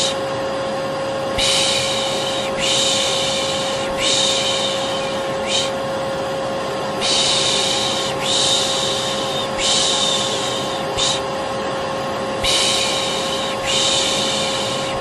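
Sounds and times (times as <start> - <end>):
vacuum cleaner humming: 0.0 - 15.0
shushing sounds: 7.0 - 11.3.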